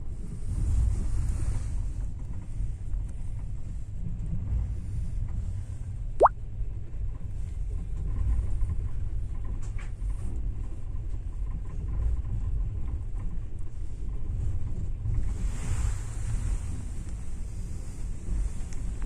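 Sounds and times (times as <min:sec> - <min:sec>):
train carriage rumble: 0:07.2 - 0:19.0.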